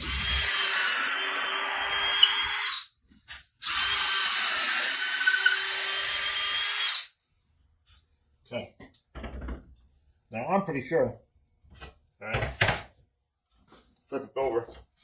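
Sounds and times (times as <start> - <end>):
power drill boring through wood: 0.0 - 2.9, 3.6 - 7.1.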